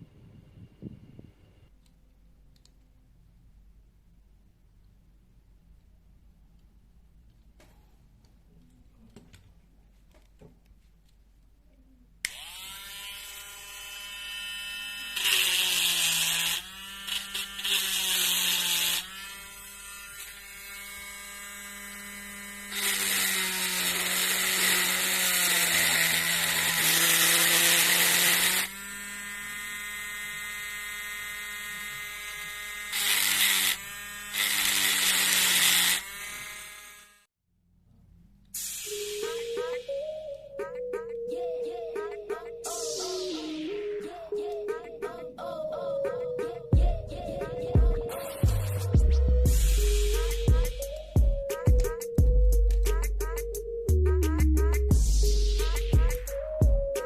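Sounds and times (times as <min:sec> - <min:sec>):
rotary tool grinding metal: 0:12.3 - 0:37.3
rotary tool whining: 0:12.3 - 0:37.3.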